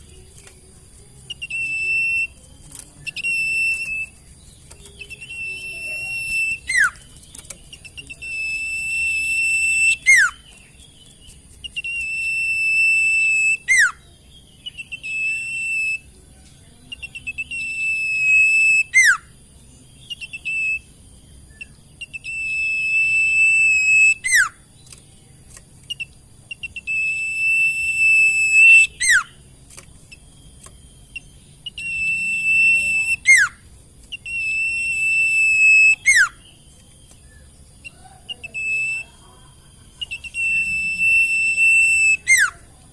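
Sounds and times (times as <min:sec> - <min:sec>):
songbird whistling: 0:01.2 - 0:16.2, 0:16.8 - 0:25.0, 0:25.8 - 0:29.4, 0:30.1 - 0:42.8.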